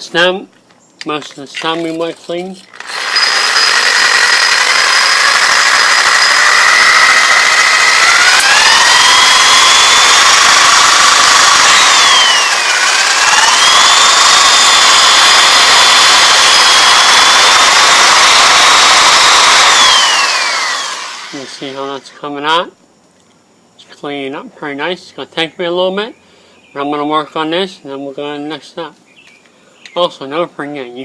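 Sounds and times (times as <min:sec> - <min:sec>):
electric drill motor whining: 0:02.7 - 0:22.0.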